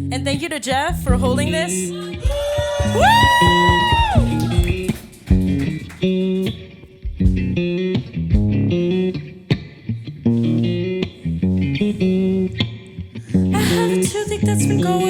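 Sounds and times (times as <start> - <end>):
bass guitar: 0.0 - 15.0
electric guitar picking chords: 0.0 - 15.0
drum hits: 2.2 - 5.8, 7.0 - 7.7.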